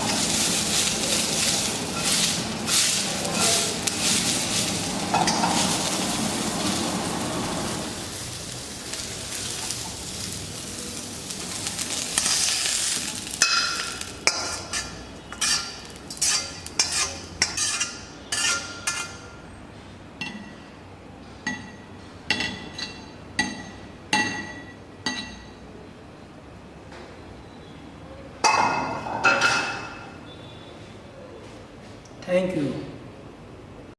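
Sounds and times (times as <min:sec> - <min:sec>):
food sizzling in a hot pan: 0:00.0 - 0:19.0
metal utensil clinking on pan: 0:12.2 - 0:19.2.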